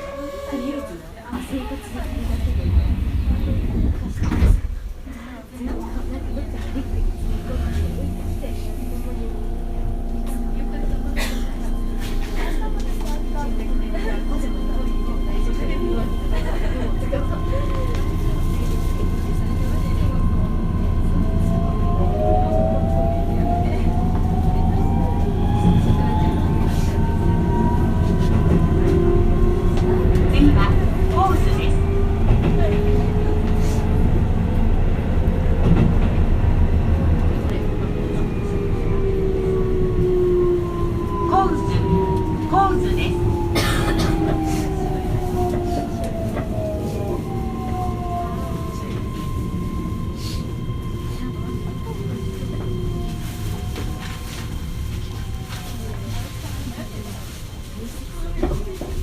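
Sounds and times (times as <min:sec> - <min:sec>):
train motor whine: 0:00.0 - 0:04.8
train rumble: 0:00.0 - 0:59.0.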